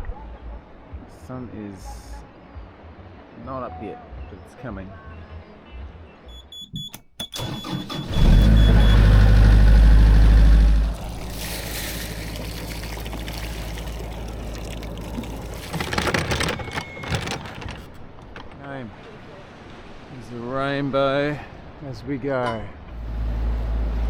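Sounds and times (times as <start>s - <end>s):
boat engine starting and idling: 7.2s - 18.5s.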